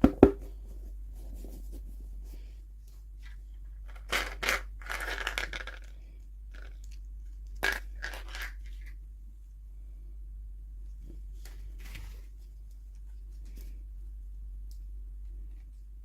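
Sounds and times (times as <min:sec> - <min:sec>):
toy packaging crinkling: 0:03.8 - 0:05.9, 0:06.5 - 0:08.9.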